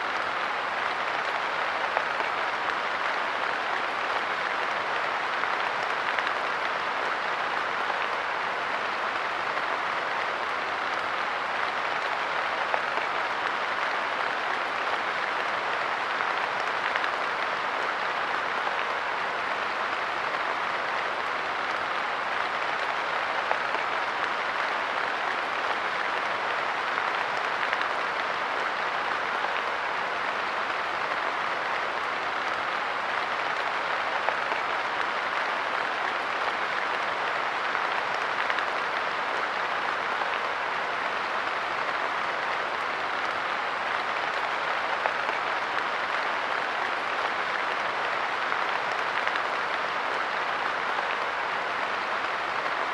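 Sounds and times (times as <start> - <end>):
light rain pattering: 0.0 - 52.9.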